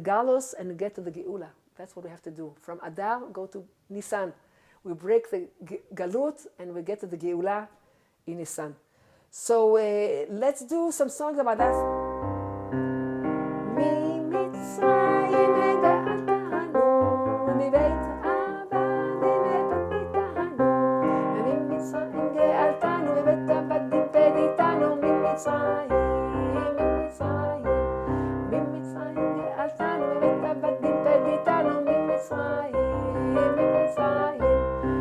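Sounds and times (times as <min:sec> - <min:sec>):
electric keyboard playing: 0:11.6 - 0:35.0
person singing: 0:13.6 - 0:35.0.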